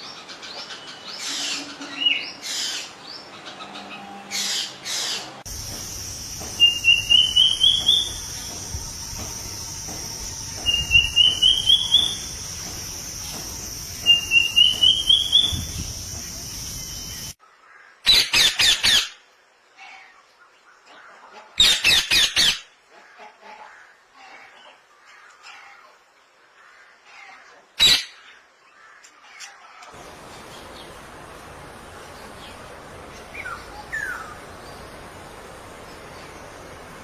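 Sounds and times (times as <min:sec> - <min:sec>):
bird singing rising notes: 0:05.6 - 0:17.4.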